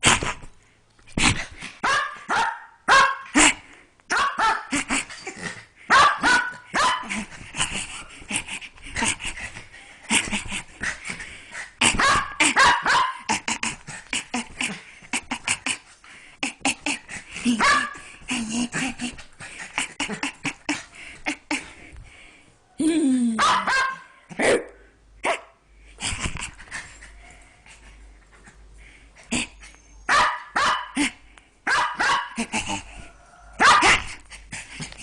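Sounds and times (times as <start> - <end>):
puppy barking and yipping: 1.8 - 3.3, 4.1 - 4.7, 5.9 - 7.2, 12.0 - 13.3, 17.6 - 18.0, 23.4 - 24.7, 29.7 - 31.0, 31.7 - 32.4, 33.6 - 34.0.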